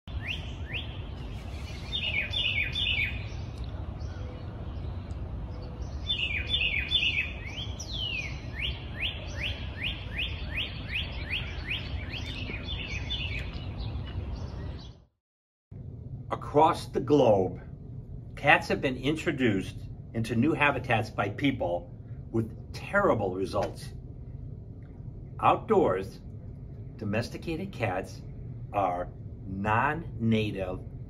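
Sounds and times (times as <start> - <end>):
songbird singing whistled notes: 0.1 - 15.1
steady low rumble: 0.1 - 15.1, 15.7 - 31.0.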